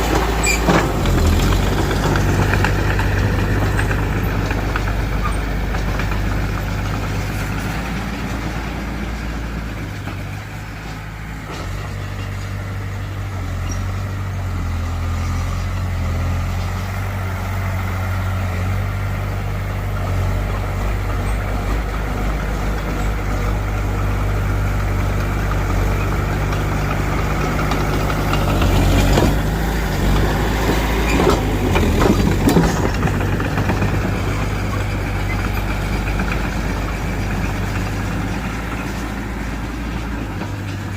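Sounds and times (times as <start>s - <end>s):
heavy diesel engine running: 0.0s - 40.9s
sharp knocks and clanks: 25.0s - 40.9s.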